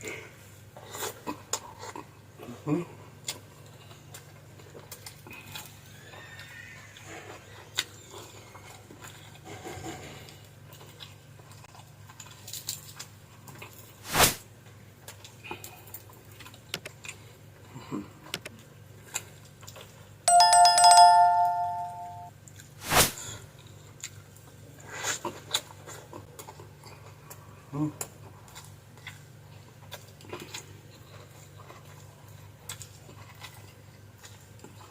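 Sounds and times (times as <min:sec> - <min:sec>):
two-tone ringing chime: 0:20.3 - 0:22.3.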